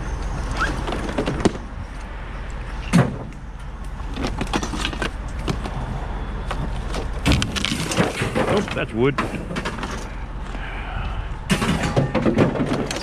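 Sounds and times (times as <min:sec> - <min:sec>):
vehicle engine idling: 0:00.0 - 0:07.7, 0:08.6 - 0:12.2
knocks and clatters: 0:04.0 - 0:10.2, 0:11.5 - 0:13.0.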